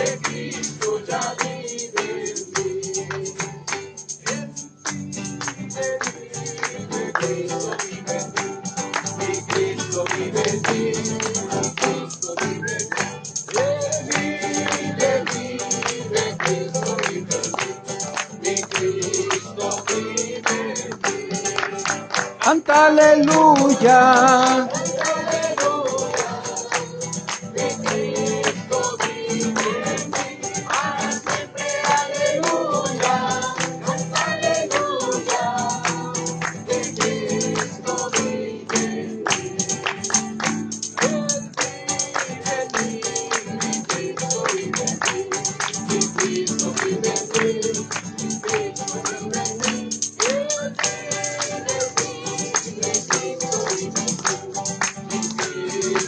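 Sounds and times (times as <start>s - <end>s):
group singing worship song: 0.0s - 56.0s
tambourine shaken and struck: 0.0s - 56.0s.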